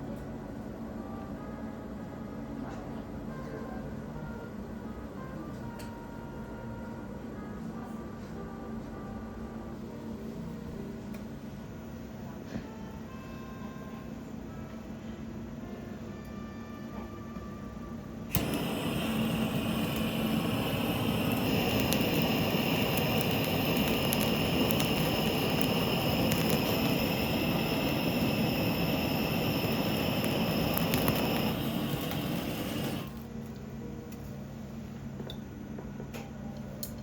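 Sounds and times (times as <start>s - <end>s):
gas torch hissing: 18.3s - 33.3s.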